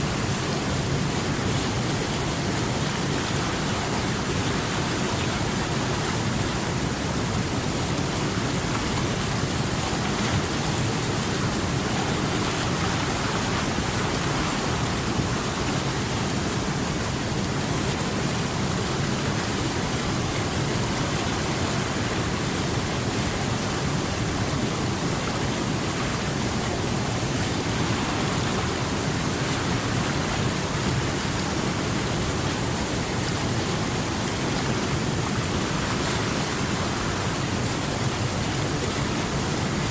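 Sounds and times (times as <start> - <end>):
water flowing over rocks: 0.0 - 39.9.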